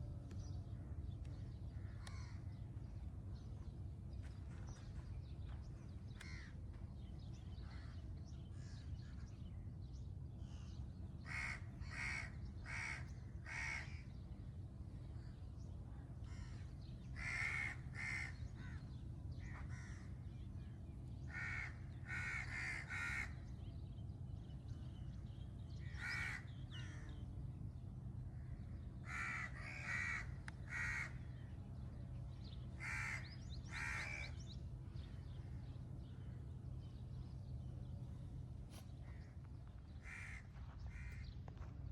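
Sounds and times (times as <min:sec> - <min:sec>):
low background rumble: 0:00.0 - 0:41.9
crow cawing: 0:01.8 - 0:02.5, 0:06.2 - 0:06.5, 0:11.2 - 0:14.0, 0:17.2 - 0:18.8, 0:21.3 - 0:23.4, 0:25.8 - 0:27.2, 0:29.0 - 0:31.3, 0:32.8 - 0:34.4, 0:40.0 - 0:41.3.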